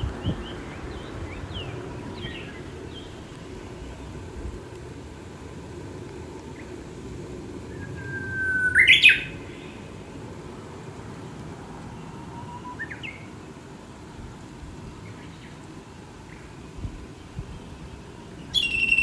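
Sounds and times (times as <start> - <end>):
bush warbler singing: 0.0 - 4.4, 7.7 - 10.3, 11.2 - 13.8, 14.9 - 19.0
low outdoor hiss: 0.0 - 19.0.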